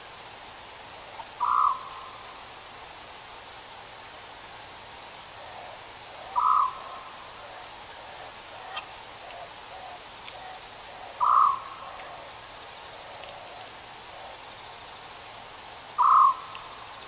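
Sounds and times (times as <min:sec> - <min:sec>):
steady hiss: 0:00.0 - 0:17.0
bird calling: 0:01.0 - 0:02.2, 0:05.4 - 0:14.6, 0:16.0 - 0:16.8.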